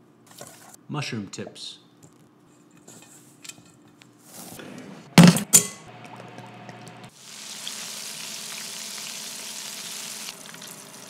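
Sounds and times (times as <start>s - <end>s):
mushrooms sizzling in hot oil: 7.1s - 11.0s.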